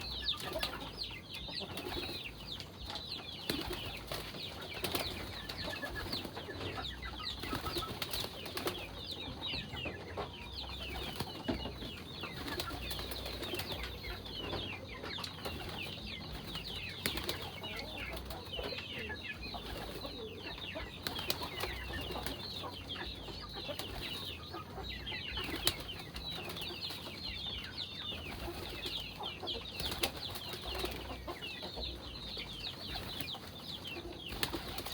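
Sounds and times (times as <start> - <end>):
flock of birds chirping: 0.0 - 34.9
wings flapping: 3.4 - 6.4, 7.4 - 8.9, 12.4 - 14.0, 15.4 - 17.6, 25.4 - 27.0, 29.8 - 31.2, 34.3 - 34.9.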